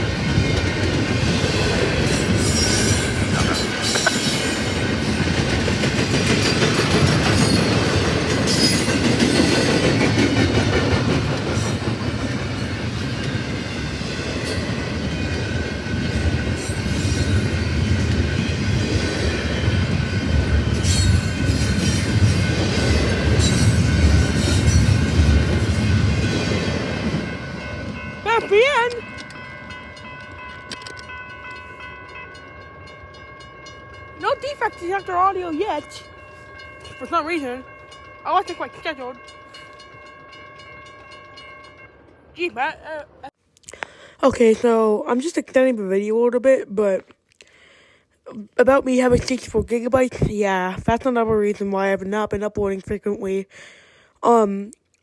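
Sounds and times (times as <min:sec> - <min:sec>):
train wheels clattering on rails: 0:00.0 - 0:42.3.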